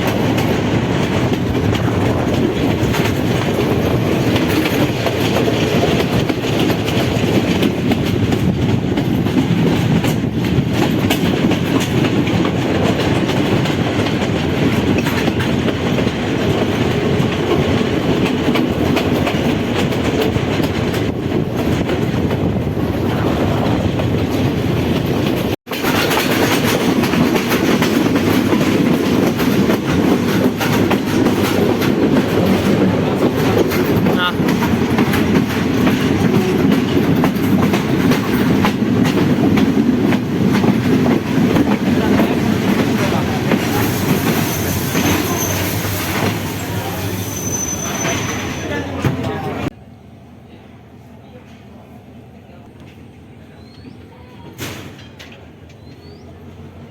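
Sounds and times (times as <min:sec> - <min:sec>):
passenger train running on rails: 0:00.0 - 0:56.9.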